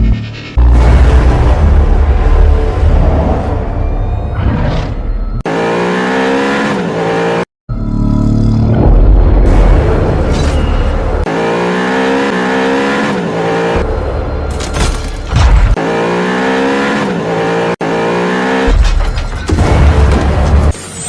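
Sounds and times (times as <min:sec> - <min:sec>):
heavy bass: 0:00.0 - 0:04.0
car engine revving with music: 0:00.0 - 0:21.0.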